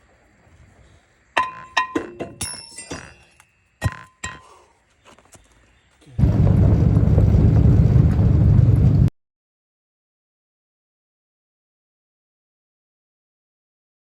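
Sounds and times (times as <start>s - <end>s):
metallic clinks: 1.4s - 4.8s
loud low rumbling: 6.2s - 9.1s.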